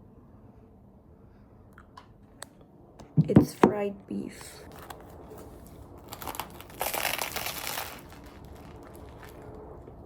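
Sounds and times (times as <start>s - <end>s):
paper wrapper crinkling: 4.6s - 10.0s.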